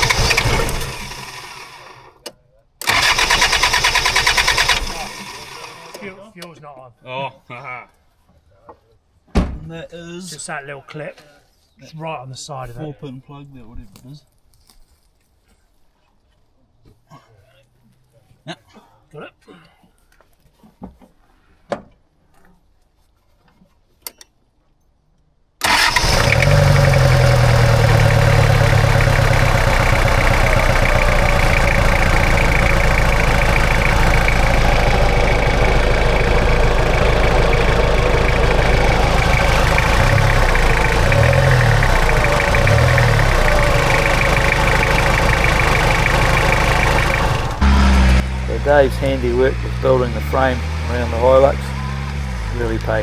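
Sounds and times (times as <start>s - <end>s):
engine revving: 0.0s - 2.1s, 2.8s - 6.1s, 25.6s - 53.0s
off-road engine running: 0.0s - 2.2s, 2.8s - 6.2s, 25.6s - 53.0s.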